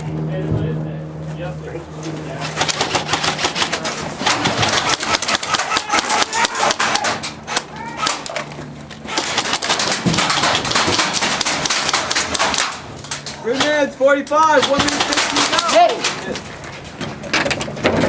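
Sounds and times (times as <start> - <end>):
low steady hum: 0.0 - 18.0
airsoft guns firing: 2.6 - 8.5, 9.1 - 12.9, 14.5 - 16.2.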